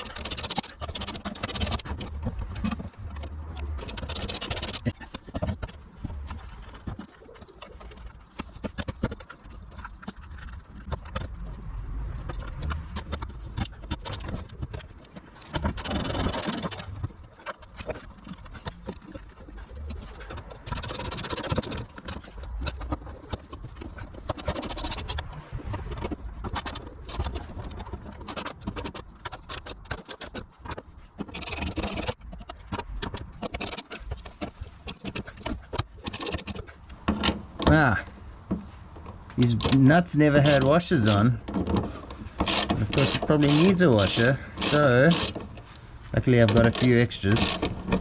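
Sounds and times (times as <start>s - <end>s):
metal scraping: 12.1s - 48.0s.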